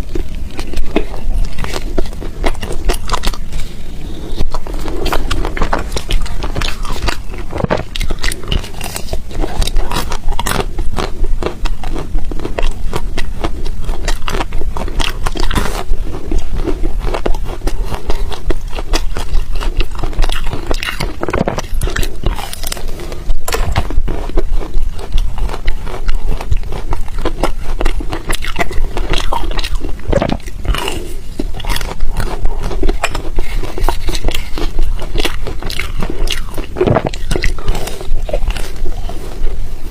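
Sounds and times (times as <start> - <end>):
chewing ice crunching: 0.0 - 39.6.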